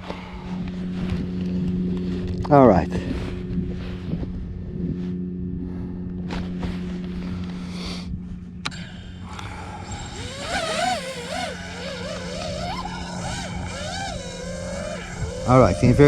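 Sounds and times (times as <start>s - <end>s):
quadcopter motors humming: 0.0s - 16.0s
quadcopter whine wavering pitch: 9.2s - 16.0s.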